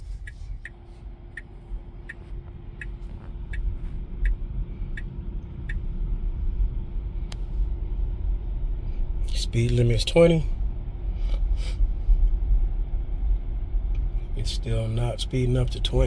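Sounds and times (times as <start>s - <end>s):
turn signal ticking: 0.0s - 7.5s
low road rumble: 0.0s - 16.0s.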